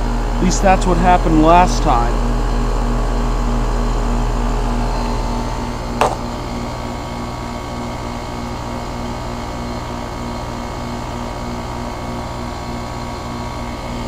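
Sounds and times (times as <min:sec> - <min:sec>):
heat pump humming: 0:00.0 - 0:14.0.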